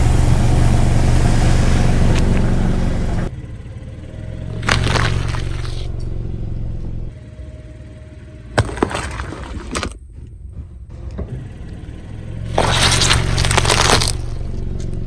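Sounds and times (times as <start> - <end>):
car engine and tyre rumble: 0.0 - 15.0
object snapping under tyre: 4.6 - 5.9, 8.6 - 10.0, 12.5 - 14.6.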